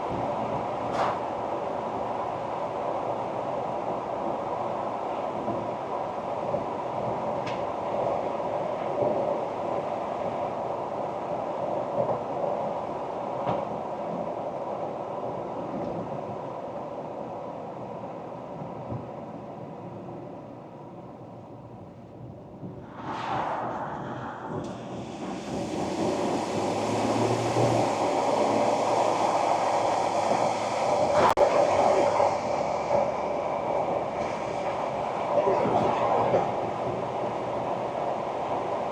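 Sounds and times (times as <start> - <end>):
engine drone: 23.1 - 37.0
road and drivetrain rumble: 24.6 - 34.7.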